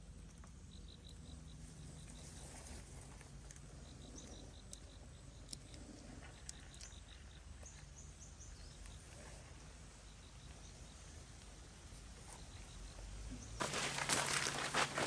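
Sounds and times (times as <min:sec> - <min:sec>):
insect chirping: 0:13.6 - 0:15.0.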